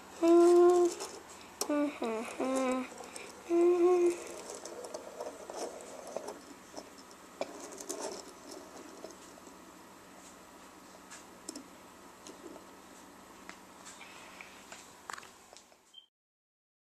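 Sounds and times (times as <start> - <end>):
person humming: 0.0 - 4.8.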